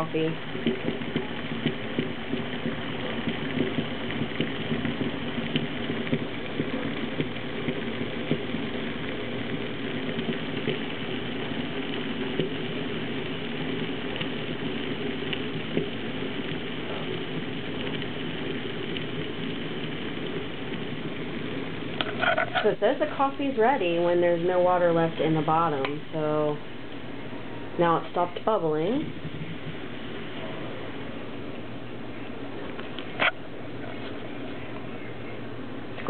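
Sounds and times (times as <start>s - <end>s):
coffee maker bubbling and gurgling: 0.0s - 36.0s.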